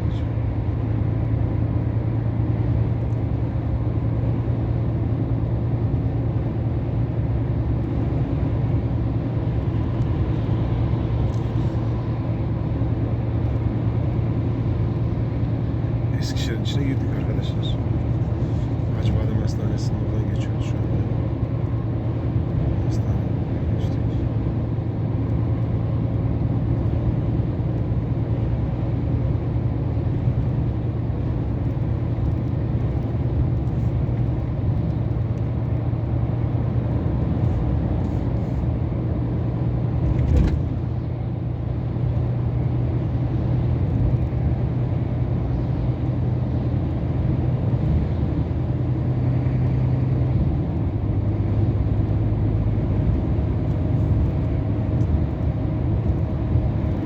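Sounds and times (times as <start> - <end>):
truck diesel engine running: 0.0 - 40.0
road noise: 0.0 - 57.0.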